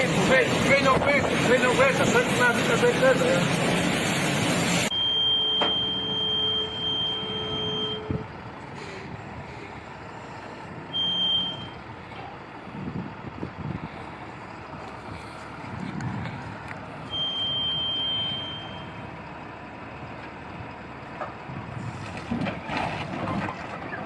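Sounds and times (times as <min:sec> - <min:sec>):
vehicle noise: 0:00.0 - 0:24.0
high-pitched tone: 0:04.9 - 0:08.1.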